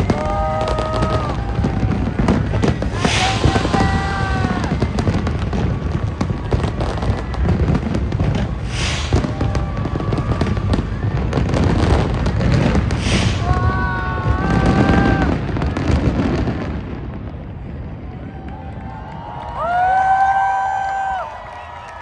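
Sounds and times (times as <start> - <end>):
fireworks hissing: 0.0 - 16.4
fireworks crackling and popping: 0.0 - 17.8
fireworks booms: 0.0 - 18.6.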